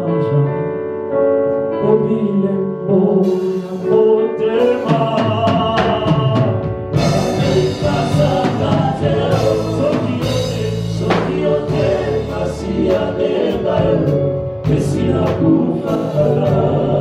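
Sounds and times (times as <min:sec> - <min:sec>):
instrumental backing: 0:00.0 - 0:17.0
choir singing gospel: 0:01.8 - 0:17.0
sustained low bass notes: 0:07.0 - 0:17.0.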